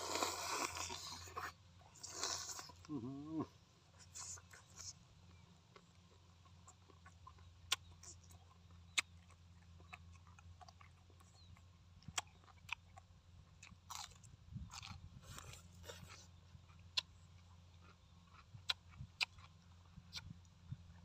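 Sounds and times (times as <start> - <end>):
sharp crunches of chewing: 0.0 - 21.0
wet chewing sounds: 0.0 - 21.0.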